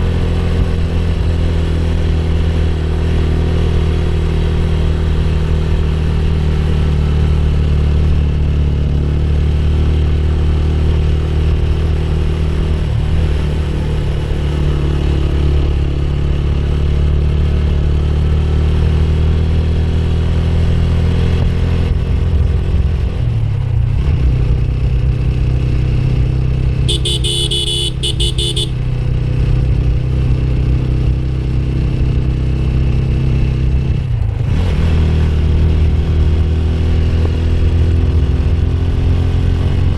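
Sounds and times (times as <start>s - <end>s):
motorcycle engine running: 23.8s - 34.0s
horn short beeps: 26.9s - 28.8s.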